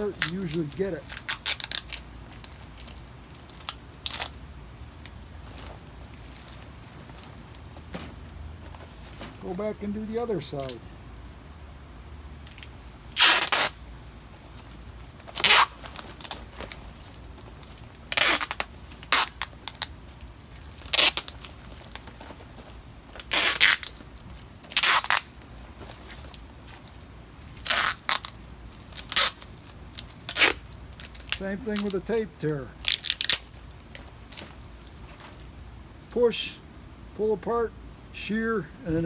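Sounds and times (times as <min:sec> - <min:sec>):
tape pulled off roll: 0:05.0 - 0:10.8, 0:12.3 - 0:13.8, 0:14.4 - 0:32.2.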